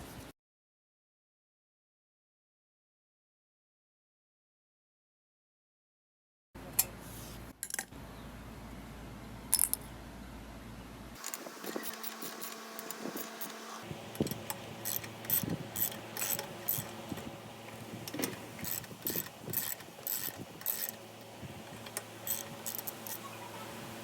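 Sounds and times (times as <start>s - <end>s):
ratchet wrench clicking: 11.2s - 17.1s, 18.0s - 21.0s, 21.6s - 23.2s.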